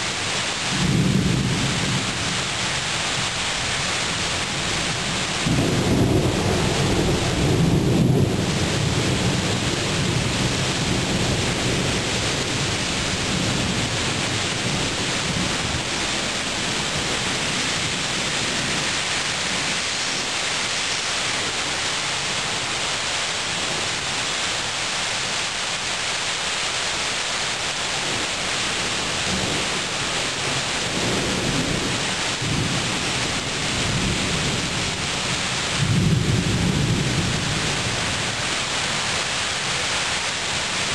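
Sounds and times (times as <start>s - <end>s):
steady rain pouring: 0.0s - 40.9s
thunder rumbling: 0.7s - 19.9s, 28.0s - 38.6s.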